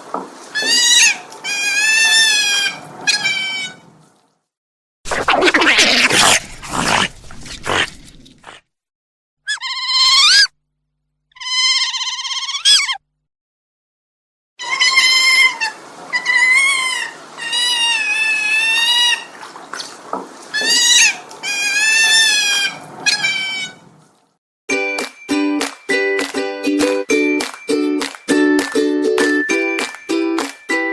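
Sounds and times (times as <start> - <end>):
animal high wavering cries: 0.6 - 3.8, 5.2 - 8.6, 9.5 - 10.5, 11.3 - 13.0, 14.6 - 19.4, 20.5 - 23.8.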